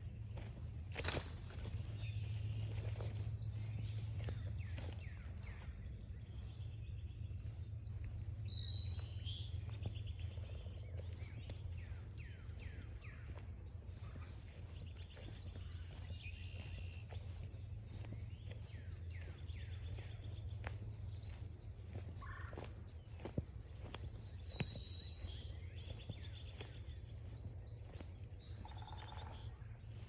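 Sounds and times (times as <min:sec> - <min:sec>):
footsteps crunching on trail: 0:00.0 - 0:30.0
songbirds chirping and singing: 0:00.0 - 0:30.0.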